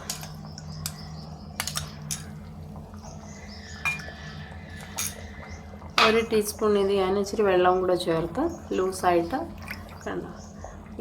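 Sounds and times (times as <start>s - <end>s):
low hum: 0.0s - 11.0s
metal spoon clinking on dish: 3.9s - 4.1s.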